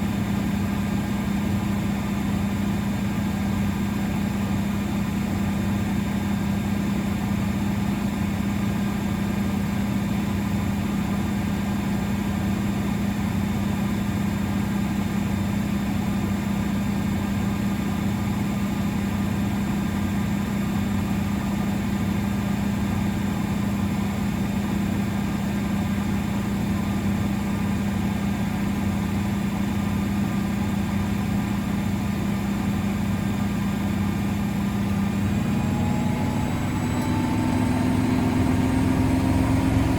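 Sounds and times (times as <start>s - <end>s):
washing machine motor hum: 22.9s - 39.9s.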